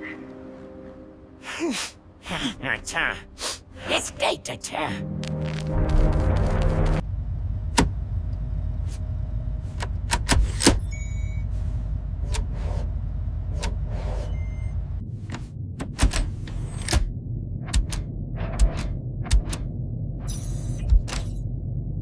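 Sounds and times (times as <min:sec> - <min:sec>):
low engine-like rumble: 0:05.7 - 0:22.0.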